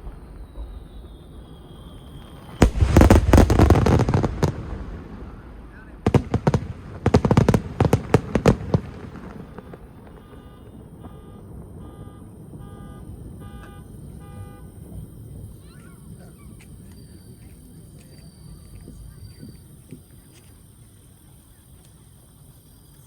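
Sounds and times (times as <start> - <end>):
fireworks cracking: 0.0 - 23.0
short honking beeps: 10.1 - 14.8.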